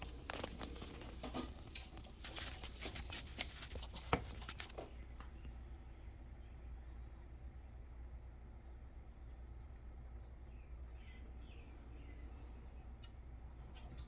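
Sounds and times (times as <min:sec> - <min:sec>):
light scratching and tapping: 0:00.0 - 0:05.6.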